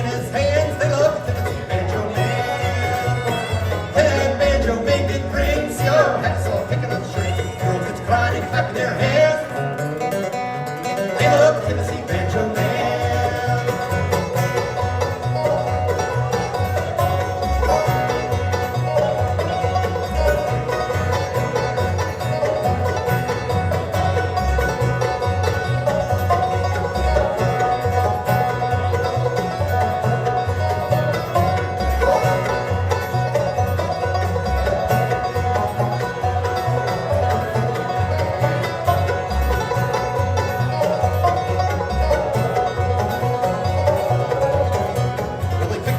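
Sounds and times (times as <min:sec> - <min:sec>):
banjo picking: 0:00.0 - 0:45.9
bluegrass band playing: 0:00.0 - 0:45.9
low bass notes: 0:00.0 - 0:45.9.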